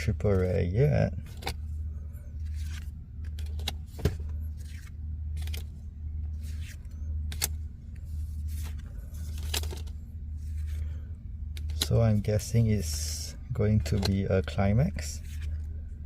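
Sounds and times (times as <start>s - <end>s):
low hum: 0.0s - 16.0s
cards clicking and snapping: 6.5s - 7.6s.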